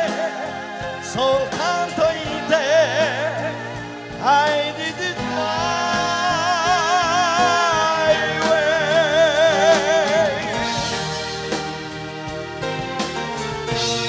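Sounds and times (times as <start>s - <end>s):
person singing with vibrato: 0.0s - 11.0s
band accompaniment: 0.0s - 14.0s.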